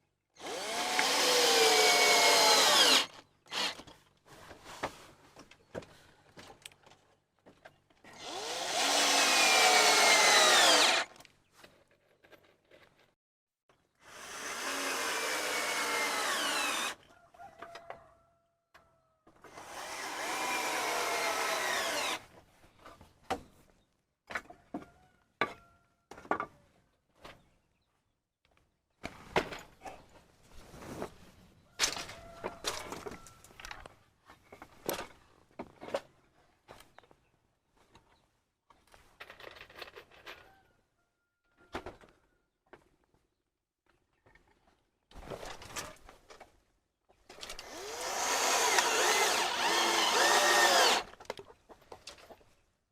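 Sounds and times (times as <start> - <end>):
handheld power tool running: 0.4 - 3.8, 8.2 - 11.1, 14.2 - 17.0, 19.6 - 22.2, 47.6 - 51.1.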